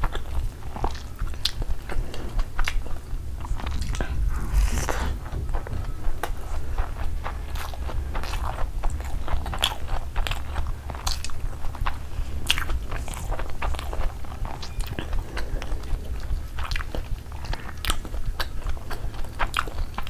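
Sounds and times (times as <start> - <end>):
steady low hum: 0.0 - 20.0
wet mouth chewing: 0.0 - 20.0.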